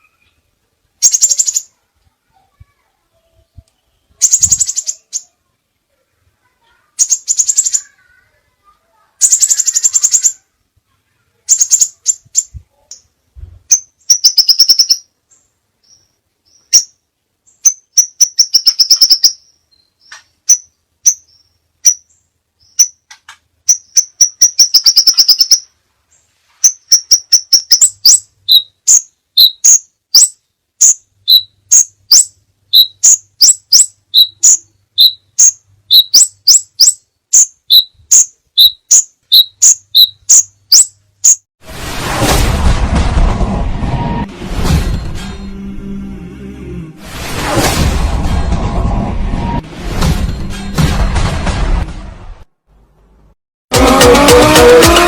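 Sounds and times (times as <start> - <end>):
bird chirping trills: 0.0 - 1.8, 3.2 - 5.5, 6.6 - 10.5, 11.4 - 41.5.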